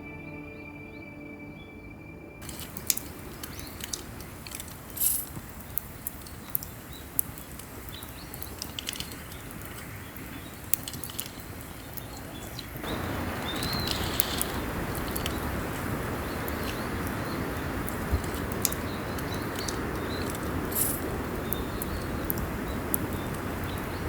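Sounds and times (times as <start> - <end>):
campfire crackling: 2.4 - 24.0
fire hiss: 2.4 - 24.0
small birds chirping: 2.4 - 24.0
steady rushing noise: 2.4 - 24.0.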